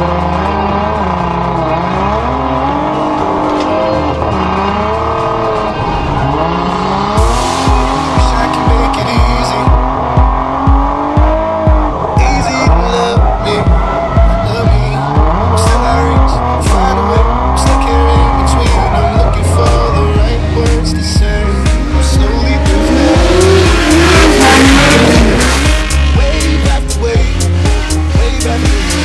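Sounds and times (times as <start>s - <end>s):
car engine revving: 0.0s - 29.0s
dance music: 0.0s - 29.0s
kick drum beat: 7.2s - 15.5s.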